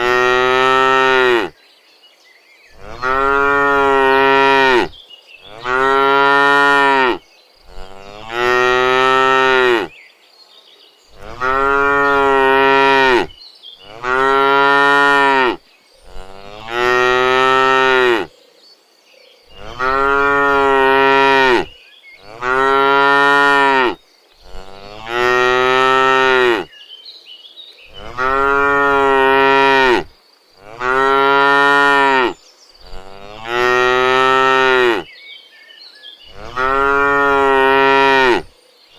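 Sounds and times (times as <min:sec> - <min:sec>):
cows mooing: 0:00.0 - 0:01.5, 0:02.8 - 0:04.9, 0:05.5 - 0:09.9, 0:11.2 - 0:18.3, 0:19.6 - 0:26.7, 0:27.9 - 0:35.1, 0:36.3 - 0:38.5.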